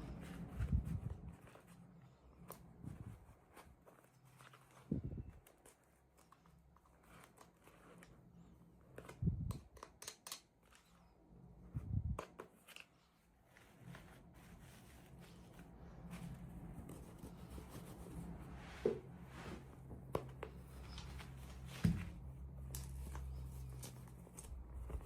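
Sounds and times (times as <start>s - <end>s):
soft thumps: 21.6s - 22.3s.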